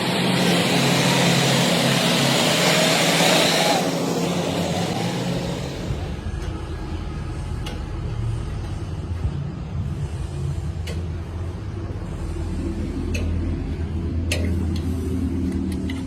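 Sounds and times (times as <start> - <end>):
engine running low rumble: 3.9 - 16.0.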